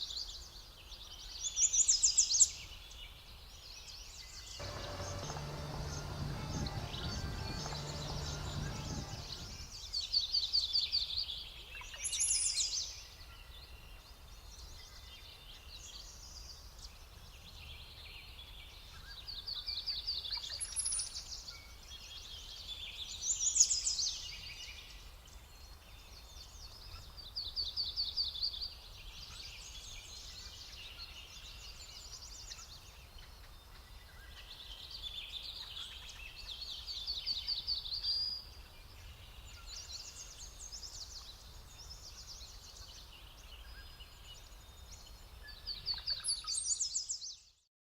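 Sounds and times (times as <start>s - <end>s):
low steady rumble: 4.6s - 9.7s
songbirds singing: 4.6s - 9.8s.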